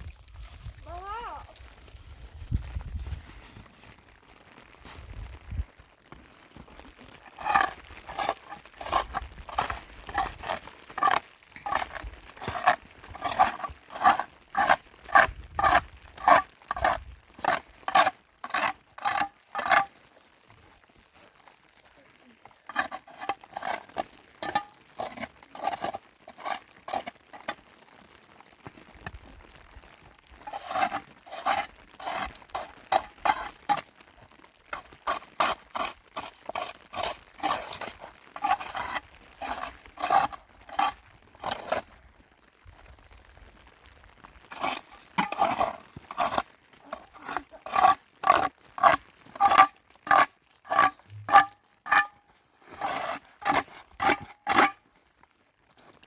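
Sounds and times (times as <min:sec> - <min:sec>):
footsteps crunching through snow: 0:01.5 - 0:14.8.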